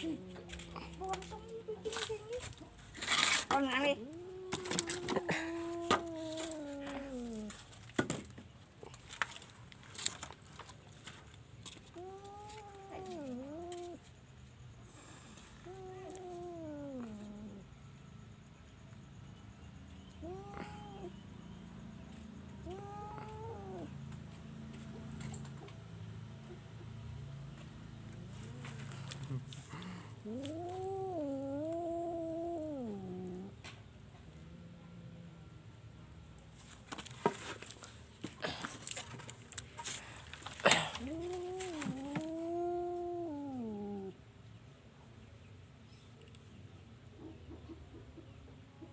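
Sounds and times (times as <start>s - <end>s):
light clicks and rustling: 0.3s - 3.8s, 4.5s - 14.2s, 36.6s - 42.4s
cat meowing: 3.6s - 7.6s, 11.9s - 14.0s, 15.6s - 17.6s, 20.2s - 21.2s, 22.6s - 24.0s, 29.8s - 33.5s, 40.7s - 44.1s.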